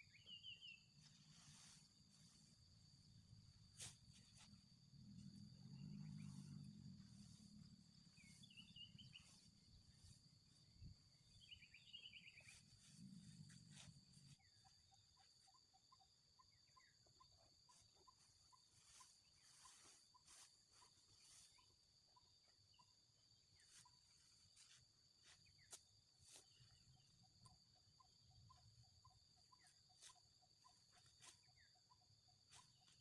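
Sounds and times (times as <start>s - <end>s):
bird chirps: 0.0s - 1.8s, 8.1s - 10.2s, 11.2s - 23.0s
high insect drone: 0.0s - 14.6s, 17.7s - 33.0s.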